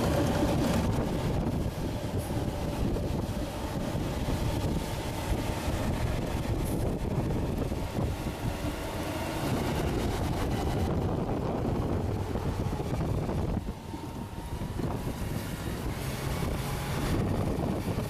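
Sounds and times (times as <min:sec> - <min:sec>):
heavy truck engine running: 0:00.0 - 0:18.0
wind buffeting microphone: 0:00.0 - 0:18.0.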